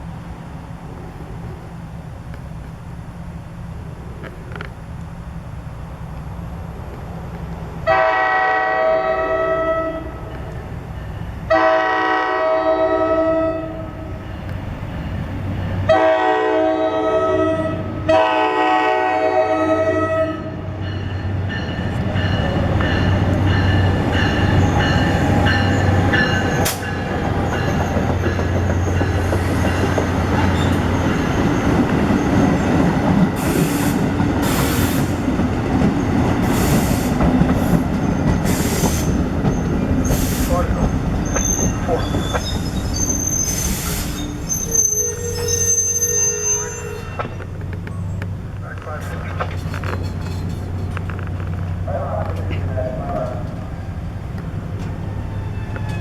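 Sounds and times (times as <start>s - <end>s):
wheels clicking and squealing on rails: 3.6s - 11.6s, 20.7s - 56.0s
locomotive air horn blasts: 7.8s - 10.2s, 11.5s - 14.1s, 15.9s - 20.6s
train engine running: 20.5s - 45.7s, 47.2s - 56.0s.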